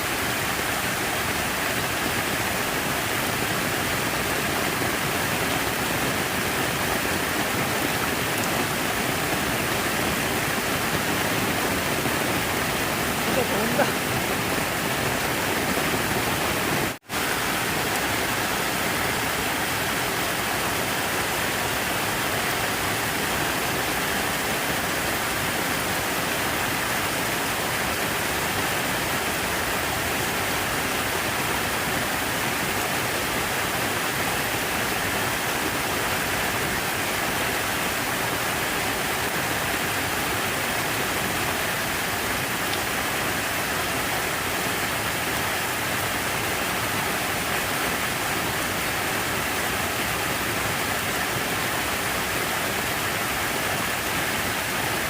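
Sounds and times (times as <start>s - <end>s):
falling water rushing: 0.0s - 55.0s.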